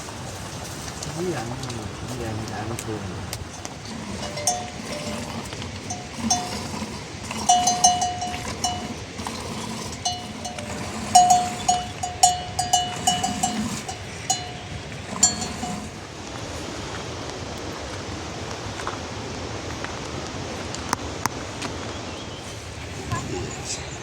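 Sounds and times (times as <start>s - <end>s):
livestock bells clanking: 3.4s - 16.1s.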